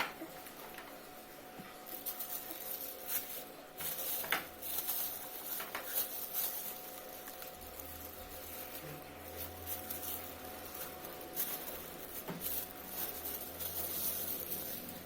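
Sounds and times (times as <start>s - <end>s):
slime squelching and crackling: 1.7s - 15.0s.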